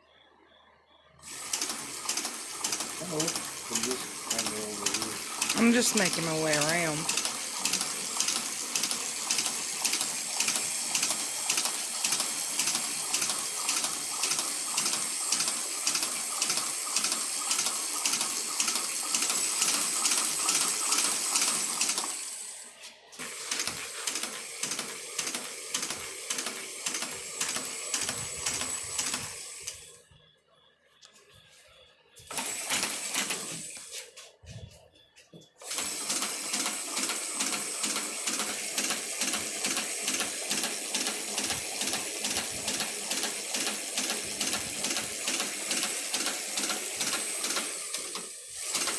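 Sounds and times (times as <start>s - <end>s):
leather sewing machine clattering: 1.5s - 22.2s.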